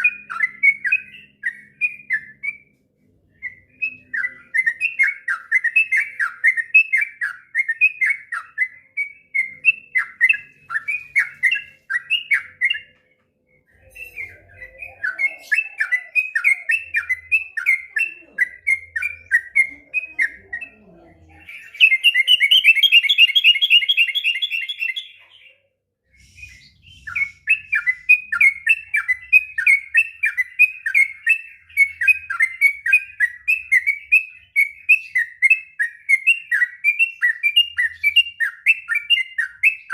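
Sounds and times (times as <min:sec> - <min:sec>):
bird chattering song: 0:13.7 - 0:25.6.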